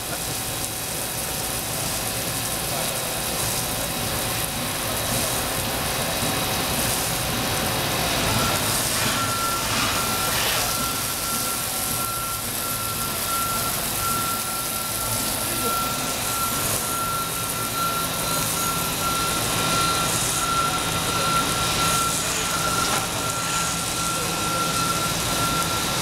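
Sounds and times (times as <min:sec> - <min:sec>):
machining center running: 0:00.0 - 0:26.0
high electronic beep: 0:08.3 - 0:26.0.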